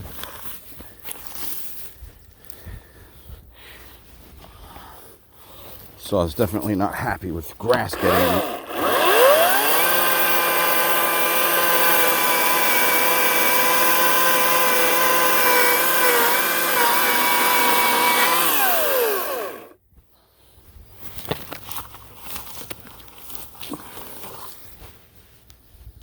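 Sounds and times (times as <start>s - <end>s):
electric chainsaw running: 7.6s - 19.8s.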